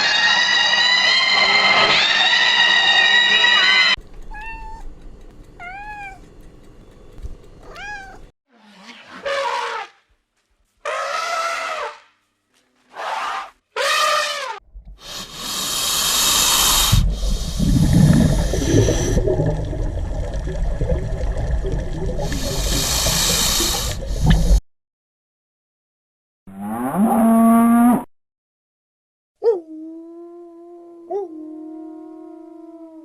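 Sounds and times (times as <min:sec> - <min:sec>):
cat meowing: 0:04.2 - 0:04.9, 0:05.6 - 0:06.3, 0:07.6 - 0:08.3.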